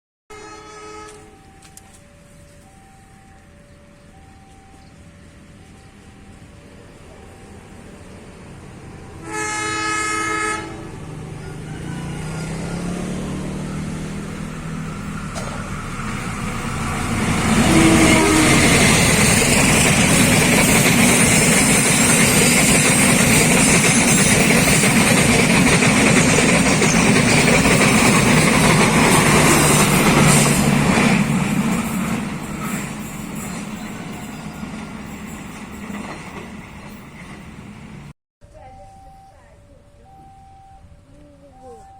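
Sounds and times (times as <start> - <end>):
train horn: 0.3 - 1.6, 9.1 - 13.4, 17.4 - 19.3
train wheels rumbling on rails: 10.7 - 38.1.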